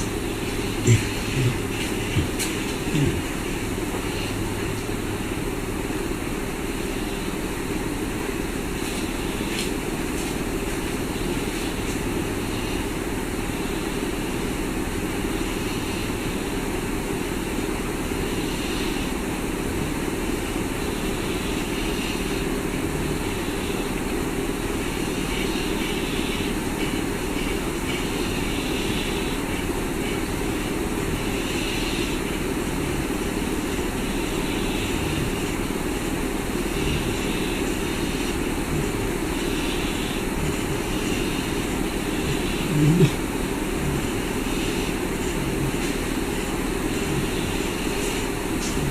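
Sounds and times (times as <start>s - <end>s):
steady droning noise: 0.0s - 48.9s.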